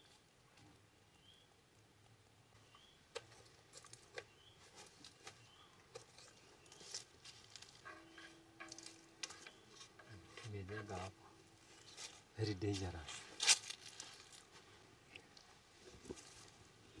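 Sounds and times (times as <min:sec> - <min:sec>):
small bird chirping: 0:02.6 - 0:03.0, 0:04.2 - 0:07.1.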